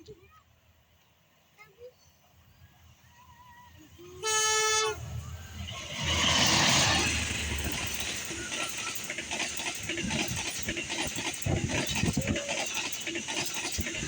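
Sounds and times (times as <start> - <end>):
train rushing past: 3.1 - 14.0
locomotive horn blast: 4.2 - 5.3.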